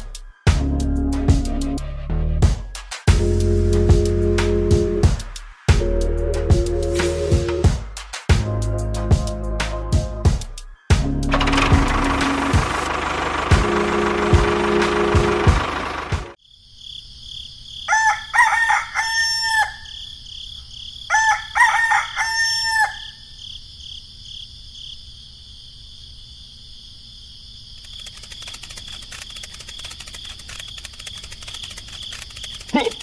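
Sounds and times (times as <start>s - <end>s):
fast run of clicks: 11.3s - 16.3s, 27.8s - 33.0s
rooster crowing: 17.9s - 20.1s, 21.0s - 23.4s.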